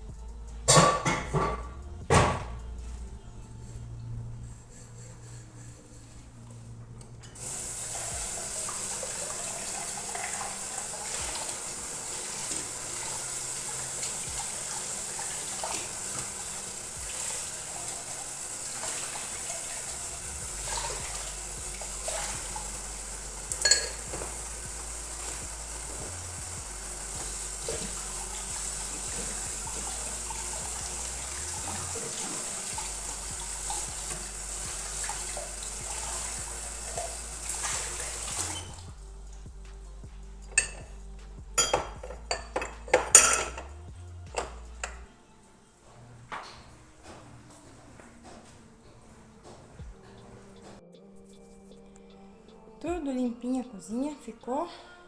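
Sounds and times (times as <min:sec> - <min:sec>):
knocks of things in sink: 0:00.7 - 0:02.6
tap running into a sink: 0:07.3 - 0:39.0, 0:41.6 - 0:43.7, 0:44.3 - 0:45.0.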